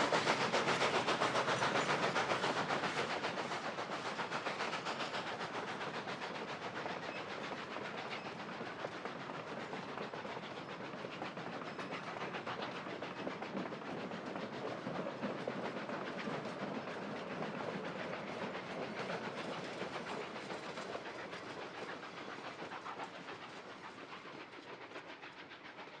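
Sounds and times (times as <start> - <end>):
train wheels clicking over rail joints: 0.0 - 26.0.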